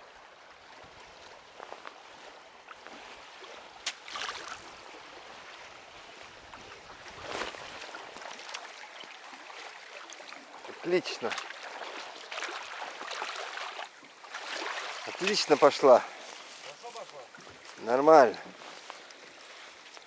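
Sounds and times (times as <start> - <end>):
water lapping around boat: 0.0 - 20.0.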